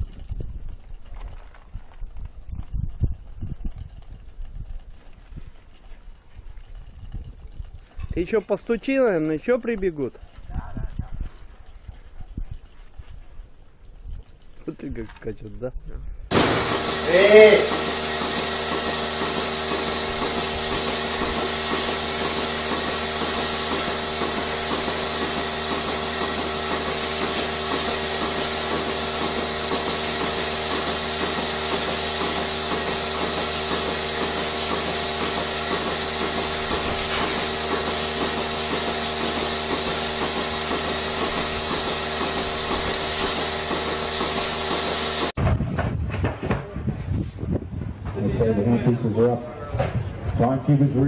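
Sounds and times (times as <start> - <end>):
fast regular pulsing: 16.3 - 45.4
machine running with hiss: 16.3 - 45.4.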